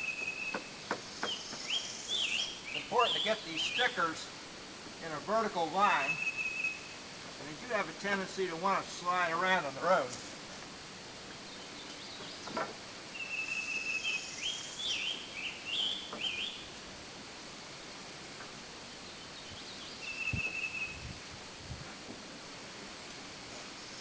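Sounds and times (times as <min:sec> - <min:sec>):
songbird singing: 0:00.0 - 0:10.3, 0:11.0 - 0:16.9, 0:18.4 - 0:21.3.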